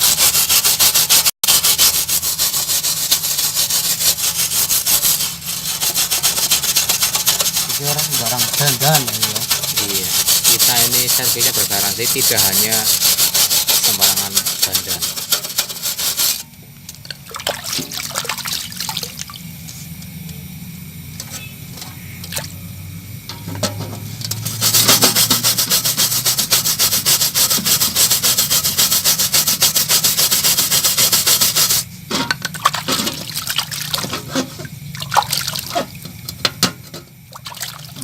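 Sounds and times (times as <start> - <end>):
hand sanding strokes: 0.0 - 16.4, 24.4 - 31.9.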